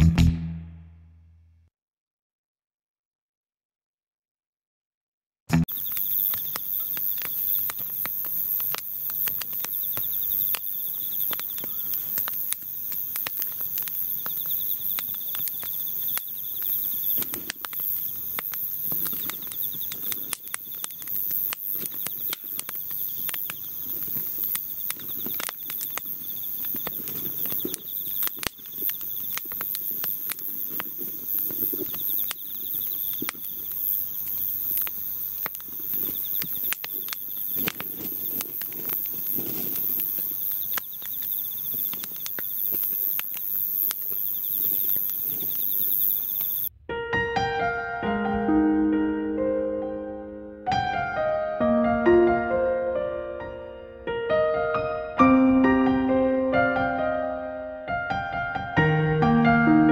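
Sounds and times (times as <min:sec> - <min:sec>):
wood fire crackling and popping: 0:05.6 - 0:46.7
insects chirping: 0:05.7 - 0:46.7.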